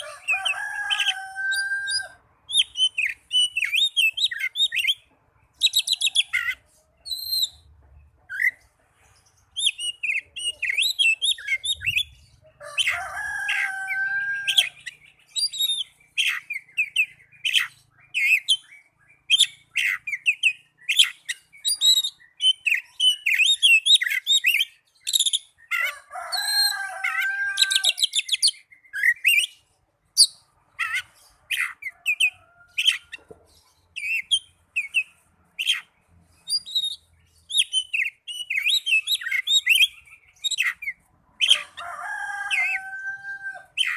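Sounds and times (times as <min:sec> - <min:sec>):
bird singing whistles and chatter: 0:05.6 - 0:07.6, 0:14.2 - 0:26.8, 0:34.0 - 0:35.9, 0:36.5 - 0:41.6.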